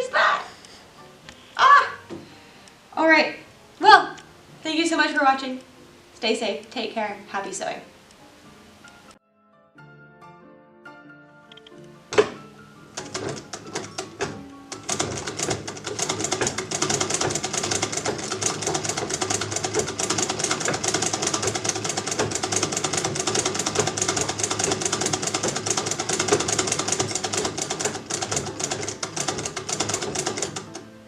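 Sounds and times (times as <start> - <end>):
treadle sewing machine clattering: 13.0 - 30.8.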